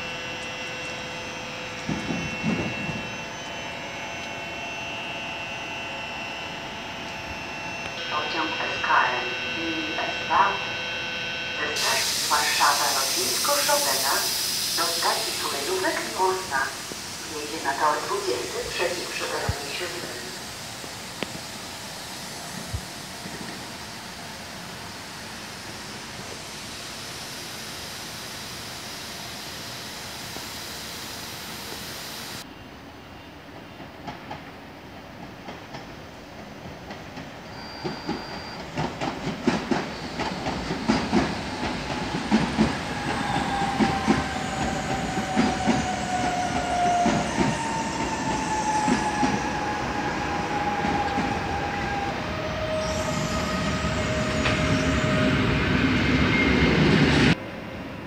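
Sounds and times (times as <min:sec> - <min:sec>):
long falling whines: 0:00.0 - 0:32.4, 0:39.8 - 0:57.7
steady hiss: 0:11.8 - 0:32.4
train wheels clattering over rails: 0:36.6 - 0:49.4.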